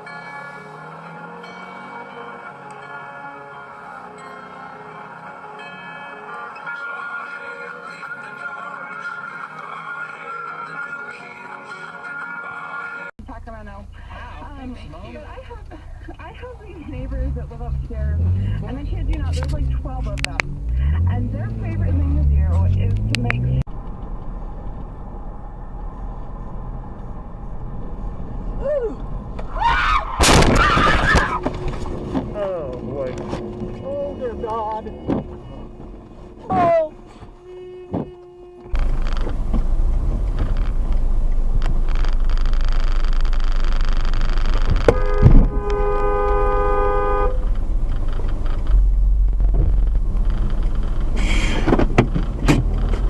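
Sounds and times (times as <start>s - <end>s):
car road and engine noise: 0.0s - 53.0s
loud thump: 30.2s - 32.3s, 44.7s - 45.6s
car horn blaring: 31.2s - 40.0s, 44.6s - 47.6s.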